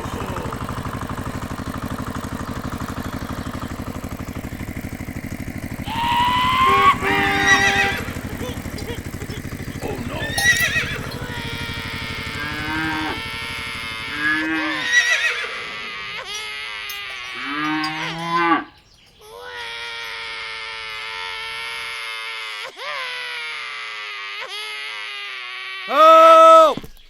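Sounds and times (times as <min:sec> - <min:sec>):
steady humming tone: 0:00.0 - 0:22.6
cow mooing: 0:05.8 - 0:18.8.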